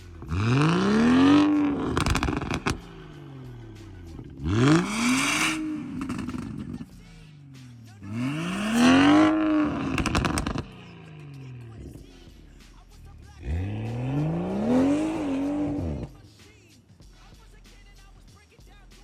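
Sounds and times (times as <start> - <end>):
car engine revving: 0.0 - 16.5
exhaust crackles: 0.0 - 18.8.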